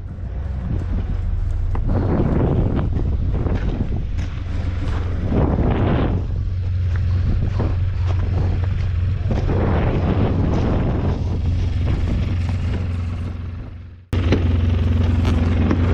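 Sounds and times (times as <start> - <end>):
snowplow engine humming: 0.0 - 15.9.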